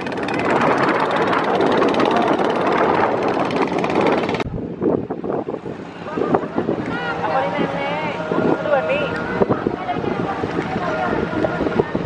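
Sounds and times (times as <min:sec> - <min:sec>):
boat engine running: 0:00.0 - 0:04.5, 0:05.7 - 0:12.0.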